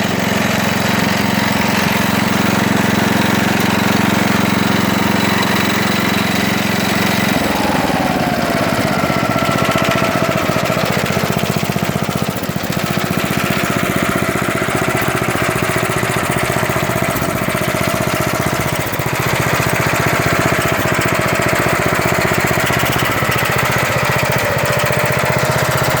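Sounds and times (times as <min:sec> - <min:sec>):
garden tractor engine running: 0:00.0 - 0:26.0
whine sliding down in pitch: 0:07.2 - 0:10.8.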